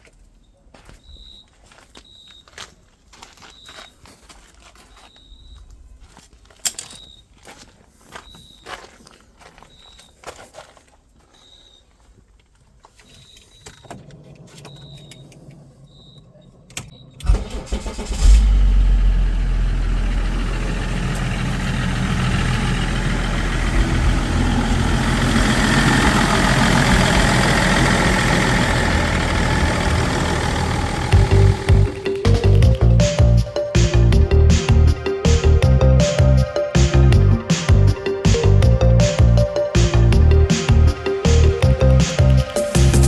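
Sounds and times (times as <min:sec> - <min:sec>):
diesel engine starting and idling: 0:13.8 - 0:43.0.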